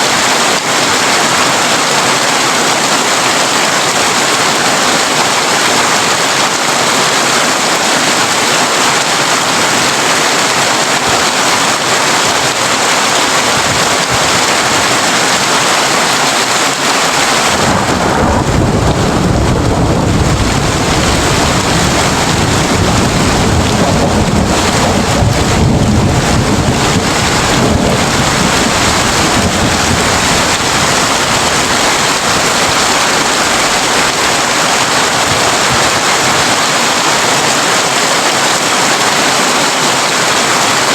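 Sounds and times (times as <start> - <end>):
heavy rain on a tin roof: 0.0 - 40.9
deep rumble of thunder: 17.4 - 32.8.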